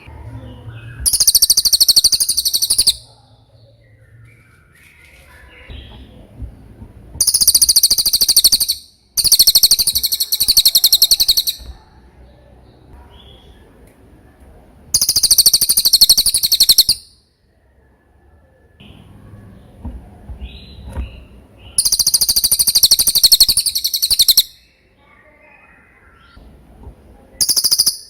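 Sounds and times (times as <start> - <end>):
soft bird chirps: 0.0 - 13.8, 14.9 - 17.3, 18.2 - 26.5, 27.2 - 28.0
parrot high-pitched trill: 1.0 - 3.1, 7.2 - 11.7, 14.9 - 17.2, 21.8 - 24.6, 27.4 - 28.0.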